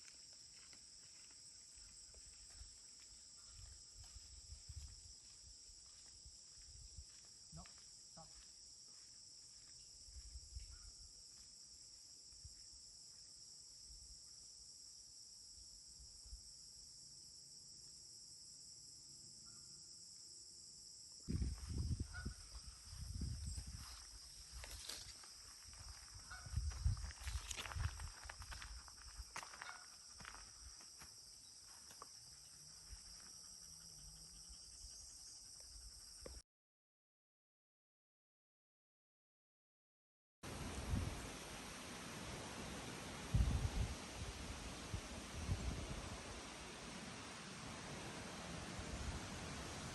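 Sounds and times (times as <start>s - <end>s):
crickets chirring: 0.0s - 36.4s, 40.5s - 49.9s
high-pitched insect chorus: 0.0s - 36.4s.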